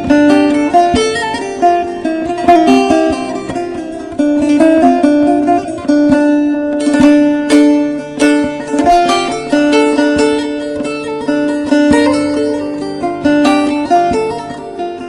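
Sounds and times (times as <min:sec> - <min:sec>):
plucked string instruments melody: 0:00.0 - 0:15.0.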